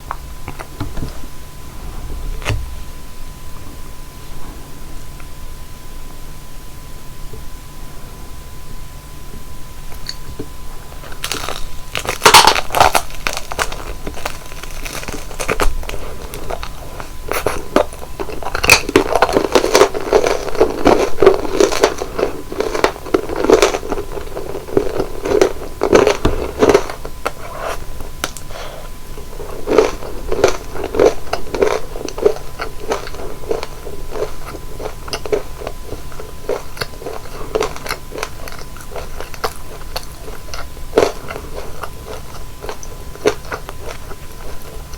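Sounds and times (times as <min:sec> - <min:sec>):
crunchy chewing of fried food: 0:09.8 - 0:44.9.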